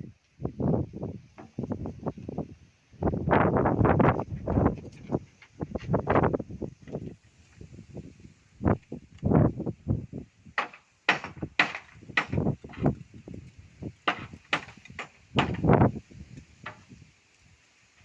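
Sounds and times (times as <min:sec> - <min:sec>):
knocks and thuds on roof: 0:10.6 - 0:12.9, 0:14.1 - 0:15.8.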